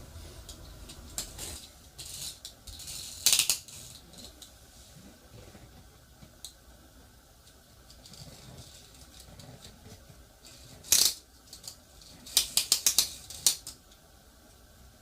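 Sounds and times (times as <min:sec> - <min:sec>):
small hard parts clicking and rattling: 0:00.9 - 0:04.5.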